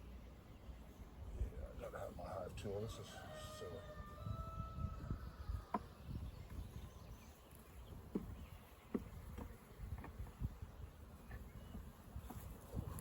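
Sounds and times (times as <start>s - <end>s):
honeybees buzzing: 5.6s - 13.0s.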